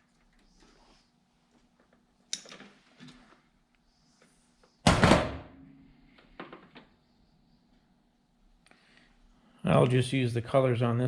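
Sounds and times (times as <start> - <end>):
loud thunk: 4.9 - 5.5.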